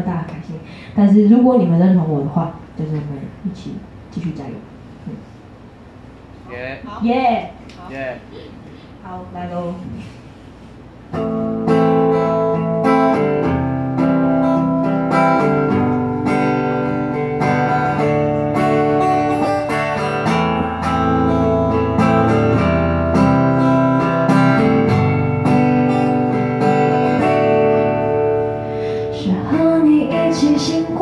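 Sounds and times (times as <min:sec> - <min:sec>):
acoustic guitar strumming chords: 0:11.1 - 0:31.0.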